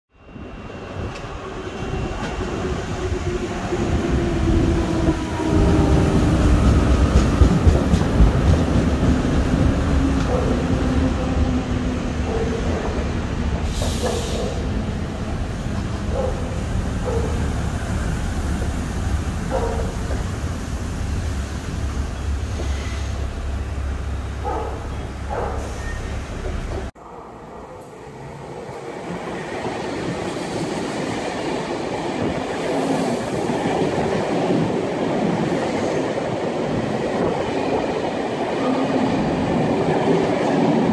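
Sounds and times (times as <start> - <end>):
train wheels rumbling on rail: 0.7 - 27.0.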